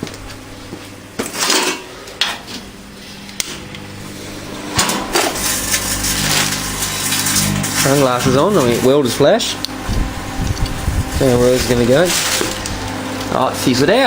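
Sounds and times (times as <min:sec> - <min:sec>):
scraping: 0:01.2 - 0:14.0
objects being handled: 0:10.5 - 0:13.3.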